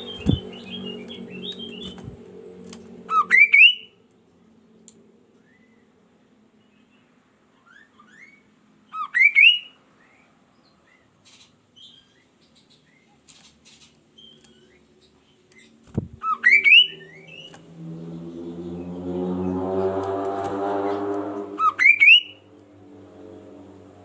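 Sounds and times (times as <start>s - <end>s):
bird whistled song: 0.0s - 2.2s, 3.1s - 3.9s, 7.6s - 10.2s, 16.2s - 17.6s, 21.6s - 22.4s
soft bird chirps: 0.0s - 4.0s, 9.1s - 19.0s.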